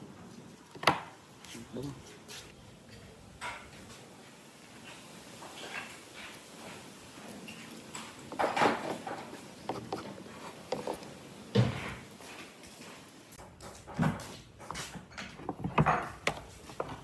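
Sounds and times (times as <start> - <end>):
wood and tools knocking: 7.9 - 12.0, 13.4 - 17.0.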